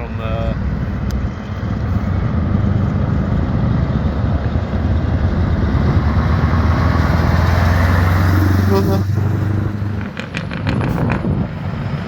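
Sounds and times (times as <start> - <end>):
truck engine running: 0.1 - 12.0.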